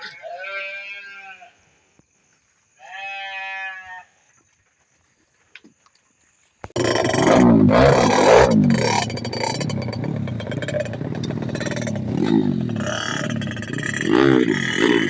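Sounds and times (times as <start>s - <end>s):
dirt bike engine revving: 6.7s - 15.0s.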